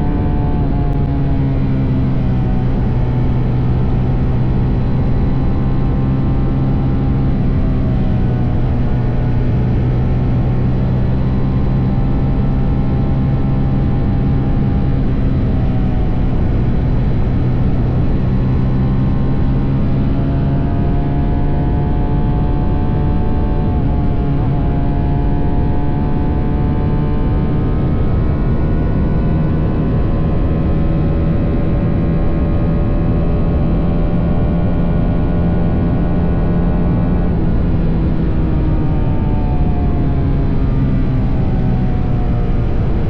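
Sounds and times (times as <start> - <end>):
motorcycle engine cruising: 0.0 - 43.0
steady rushing noise: 21.8 - 43.0.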